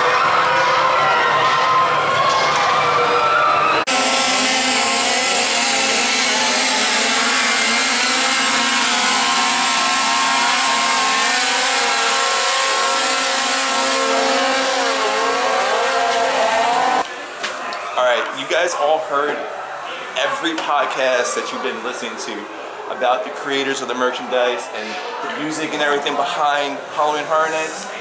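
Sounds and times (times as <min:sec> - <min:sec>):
chainsaws running and revving: 0:03.8 - 0:17.0.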